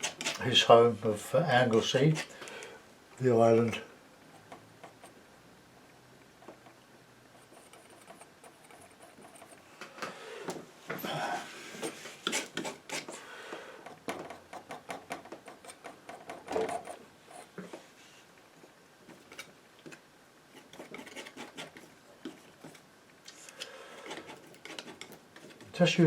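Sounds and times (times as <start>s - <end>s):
painting knife scraping paint: 0.0s - 0.6s, 1.6s - 2.4s, 7.3s - 9.6s, 11.8s - 13.2s, 20.5s - 25.8s.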